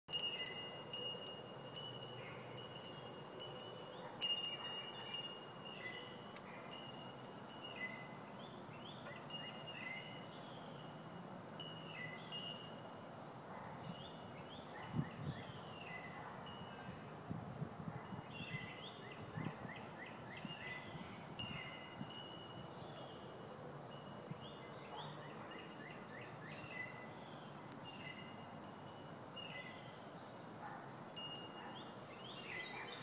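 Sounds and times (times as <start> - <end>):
wind chime bells tinkling: 0.1 - 8.4, 9.1 - 12.8, 21.4 - 23.4, 28.2 - 29.2, 31.2 - 31.7.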